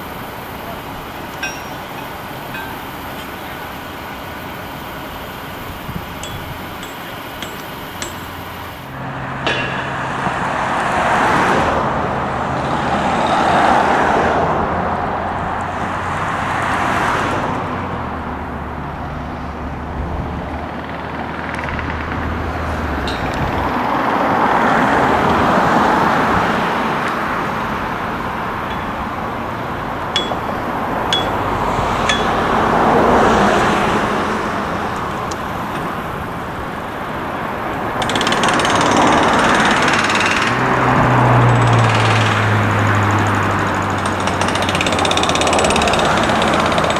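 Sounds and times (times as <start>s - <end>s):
road traffic passing: 0.0s - 46.9s
sharp metallic clinks: 1.1s - 4.2s, 5.7s - 10.2s, 23.0s - 23.7s, 27.0s - 32.8s.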